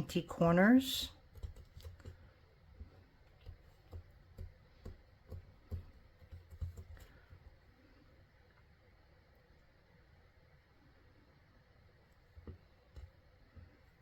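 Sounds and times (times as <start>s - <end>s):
taps and clicks of tools on surface: 2.8s - 7.1s.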